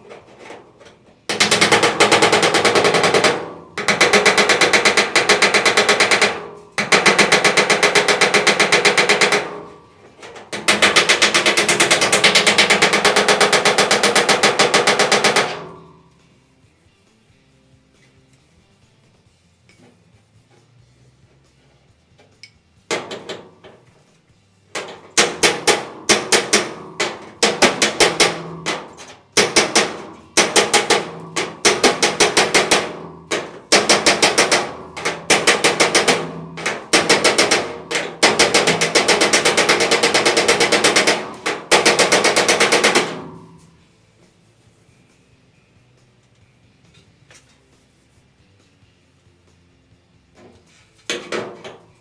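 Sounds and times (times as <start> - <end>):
hammer striking sheet steel: 0.0 - 16.2, 22.9 - 24.1, 24.8 - 43.9, 50.4 - 52.0.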